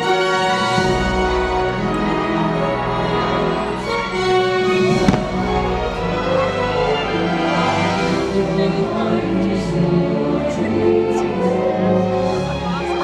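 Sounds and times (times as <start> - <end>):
orchestral music over loudspeakers: 0.0 - 13.0
faint firework pops: 4.9 - 5.8
firework bang: 4.9 - 6.0.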